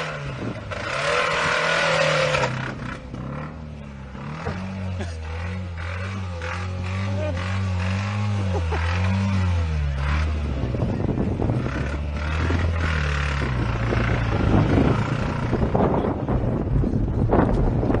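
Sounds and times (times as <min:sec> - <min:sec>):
car engine high-revving: 0:00.0 - 0:16.7
engine rough irregular rattle: 0:10.0 - 0:18.0.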